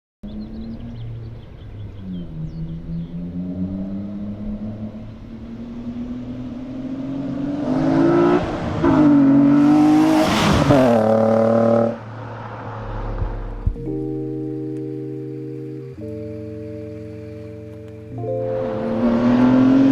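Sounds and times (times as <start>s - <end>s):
car engine accelerating past: 0.3s - 13.7s, 18.2s - 19.9s.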